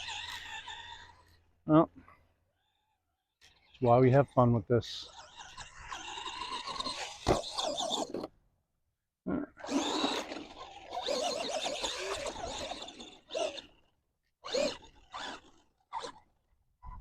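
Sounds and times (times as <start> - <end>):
electric motor whine: 9.6 - 13.7.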